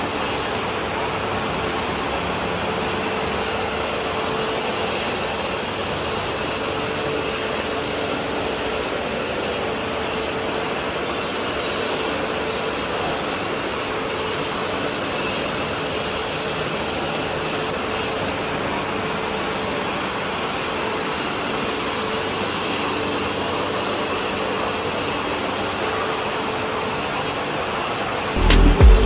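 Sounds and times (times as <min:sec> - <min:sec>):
music: 0:28.4 - 0:29.0.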